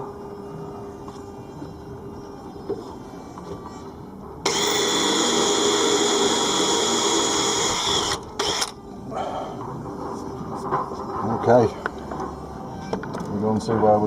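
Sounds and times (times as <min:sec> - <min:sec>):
power drill drilling: 0:04.5 - 0:08.7.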